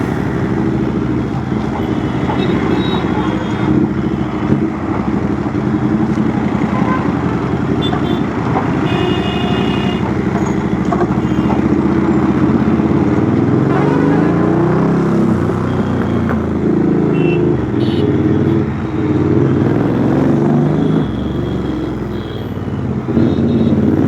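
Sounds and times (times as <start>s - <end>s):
horn sounding: 0.0s - 4.6s, 6.5s - 11.6s, 13.6s - 16.3s.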